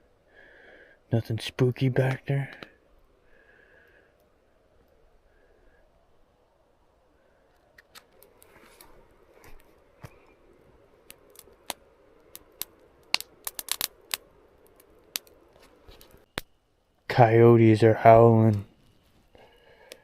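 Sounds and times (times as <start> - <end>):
faint sharp clicks and crackles: 7.4 - 10.4, 11.0 - 17.1.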